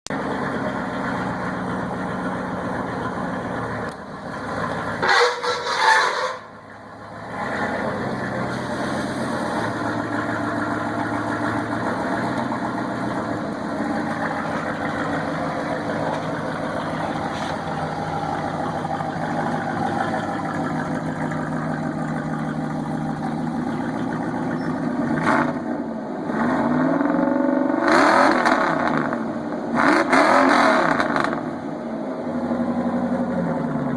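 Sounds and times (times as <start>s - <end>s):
truck engine idling and revving: 0.0s - 33.9s.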